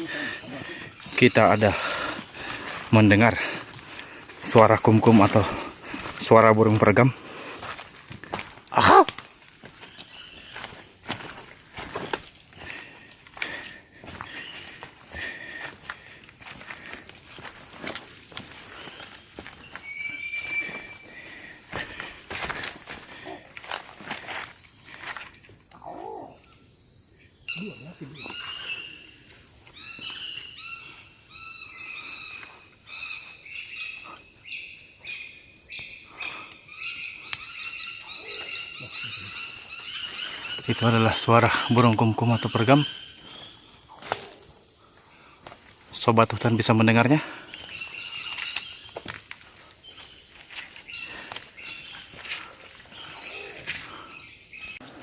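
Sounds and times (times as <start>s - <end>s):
footsteps in undergrowth: 0.0s - 25.6s, 45.4s - 54.0s
insects droning: 0.0s - 55.0s.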